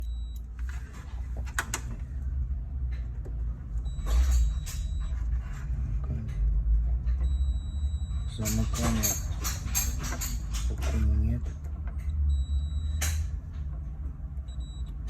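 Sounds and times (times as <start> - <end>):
high electronic beep: 7.2 - 8.8, 12.3 - 13.0.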